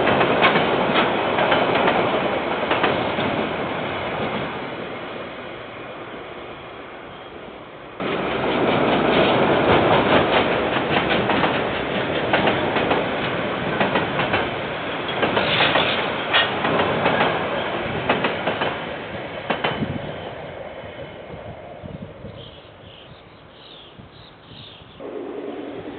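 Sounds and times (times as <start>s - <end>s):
train wheels clattering over rail joints: 0.0s - 3.6s, 8.0s - 20.0s.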